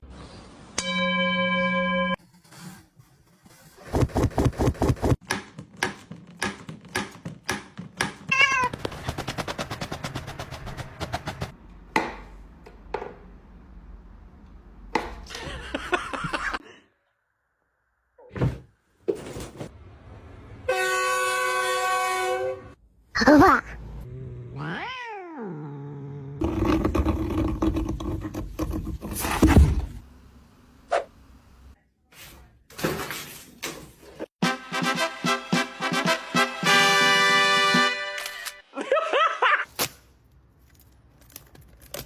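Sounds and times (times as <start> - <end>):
cats meowing: 8.3 - 8.8, 24.6 - 25.7.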